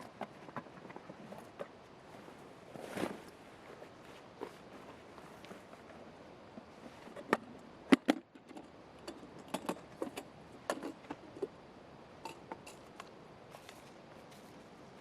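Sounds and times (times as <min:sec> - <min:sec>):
objects clicking and knocking: 0:07.1 - 0:11.5.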